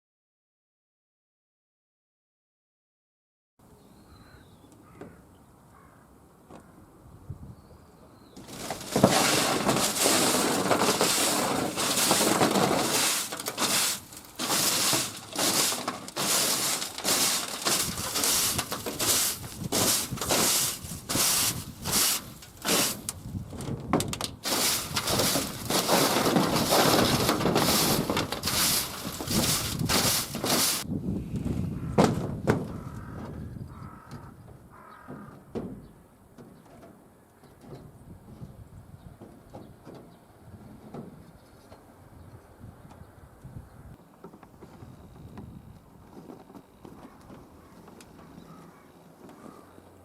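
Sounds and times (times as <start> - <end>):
rough scraping strokes: 8.4 - 23.4, 24.4 - 30.9.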